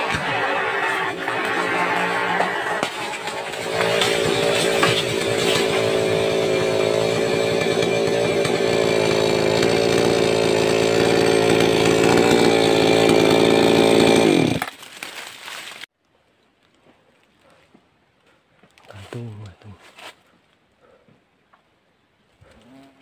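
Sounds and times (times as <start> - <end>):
chainsaw running at high revs: 0.0 - 14.7.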